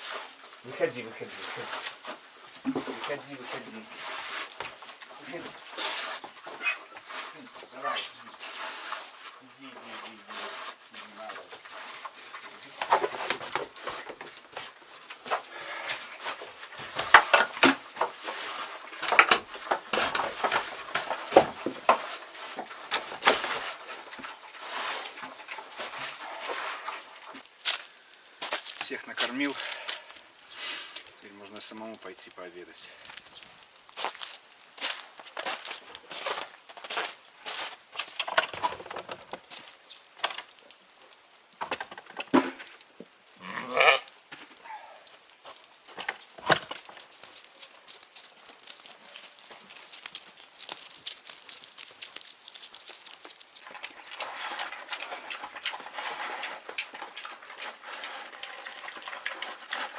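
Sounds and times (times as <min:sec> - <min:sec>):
animals eating feed: 0:00.0 - 0:59.9
knocks and crunches of movement: 0:00.0 - 0:59.9
sheep bleating: 0:43.4 - 0:44.1.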